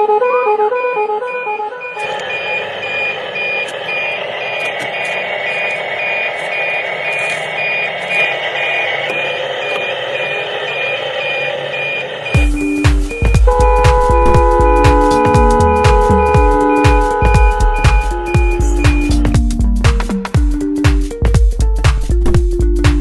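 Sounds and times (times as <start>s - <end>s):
traffic noise: 0.0s - 12.3s
truck reversing alarm beeping: 0.7s - 20.3s
loud music: 1.5s - 23.0s
engine noise: 1.8s - 19.4s.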